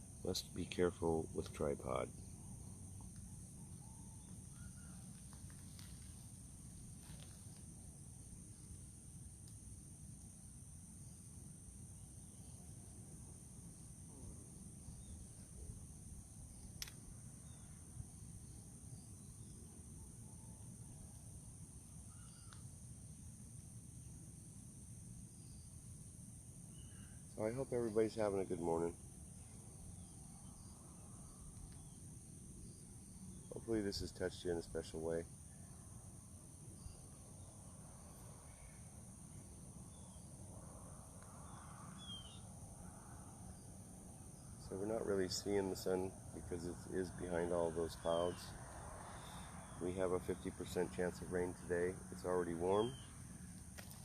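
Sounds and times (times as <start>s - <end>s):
high-pitched insect chorus: 0.0s - 54.0s
faint short bird chirps: 22.1s - 22.6s.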